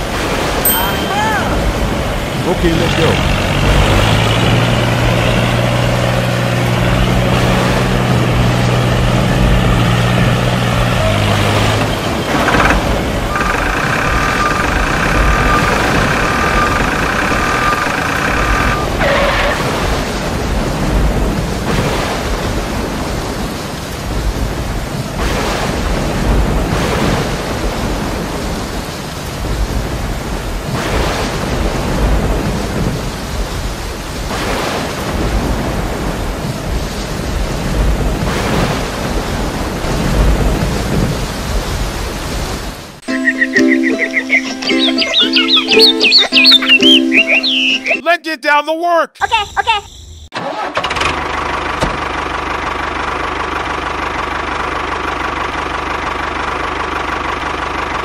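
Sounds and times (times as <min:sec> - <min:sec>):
higher held tone: 0:00.6 - 0:02.0, 0:43.0 - 0:48.1
tractor engine rumble: 0:00.6 - 0:19.4, 0:50.3 - 0:58.0
low held tone: 0:00.7 - 0:01.8.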